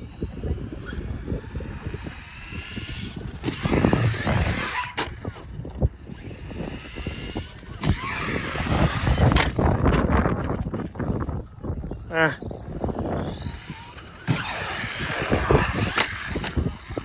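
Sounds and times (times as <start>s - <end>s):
rc car motor whine: 0.0s - 17.0s
tyres on dirt: 1.6s - 11.2s, 13.0s - 17.0s
sharp knocks of landings: 2.9s - 5.6s, 7.2s - 10.8s, 13.6s - 17.0s.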